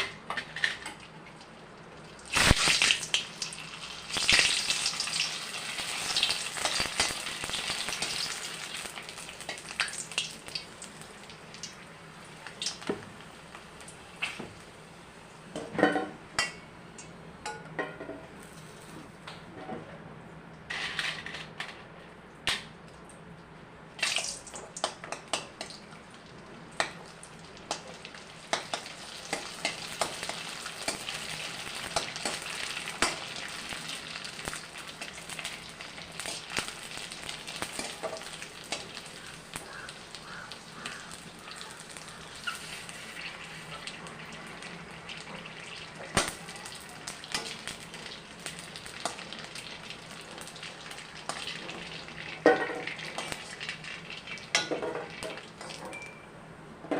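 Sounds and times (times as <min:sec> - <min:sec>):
food sizzling in hot oil: 0:02.1 - 0:14.6, 0:24.0 - 0:55.9.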